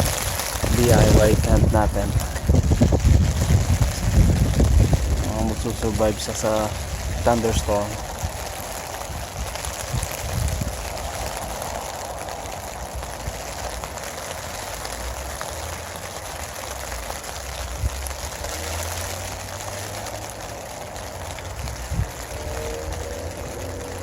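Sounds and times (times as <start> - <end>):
low rumble: 0.0 - 13.3, 20.5 - 24.0
rain falling on a tent: 0.0 - 24.0.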